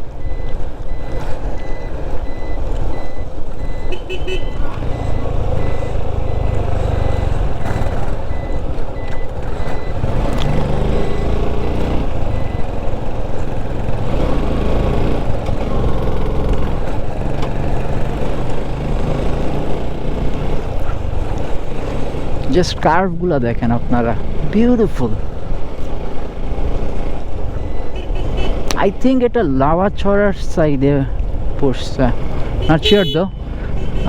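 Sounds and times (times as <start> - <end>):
motorcycle engine running: 2.4 - 22.5.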